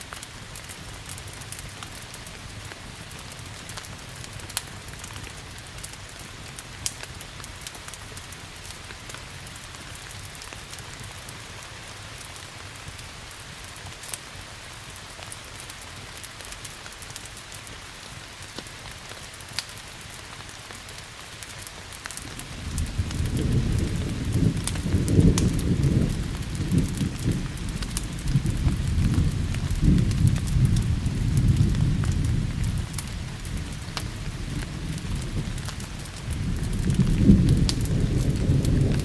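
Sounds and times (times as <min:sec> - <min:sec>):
steady rain hiss: 0:00.0 - 0:39.0
wood fire crackling: 0:00.0 - 0:39.0
thunder rumble: 0:22.3 - 0:39.0.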